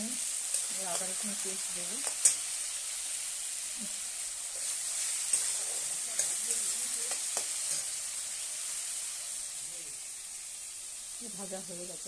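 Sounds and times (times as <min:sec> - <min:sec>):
masala sizzling in hot oil: 0:00.0 - 0:12.0
metal spatula tapping pan: 0:02.0 - 0:02.5, 0:05.3 - 0:07.9.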